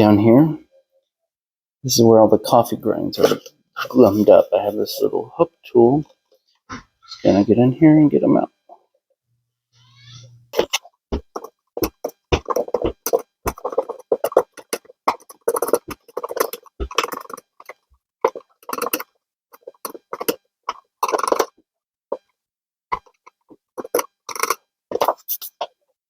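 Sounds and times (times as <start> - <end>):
hook tool scraping plastic: 10.5 - 22.3, 22.9 - 25.8.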